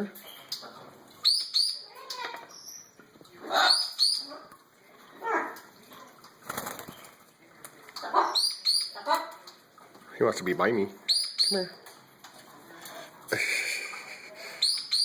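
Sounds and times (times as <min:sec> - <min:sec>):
parrot high chirps: 0:01.2 - 0:04.4, 0:08.0 - 0:09.4, 0:11.1 - 0:11.8, 0:14.6 - 0:15.0
parrot wings flapping: 0:06.3 - 0:07.8.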